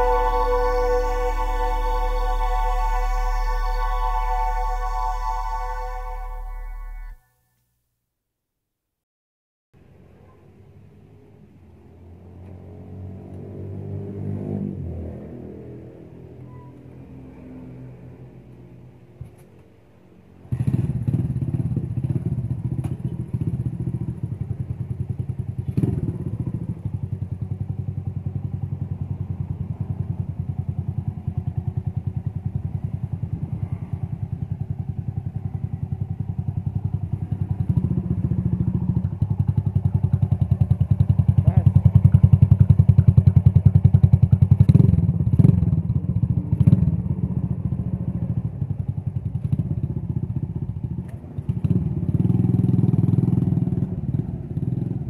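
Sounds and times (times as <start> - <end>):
motorcycle engine starting and running: 0.0 - 7.2, 20.4 - 55.0.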